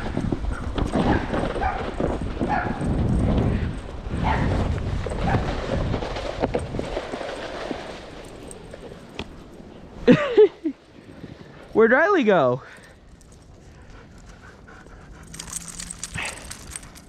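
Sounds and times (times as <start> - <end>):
snowboard sliding over snow: 0.0 - 9.2.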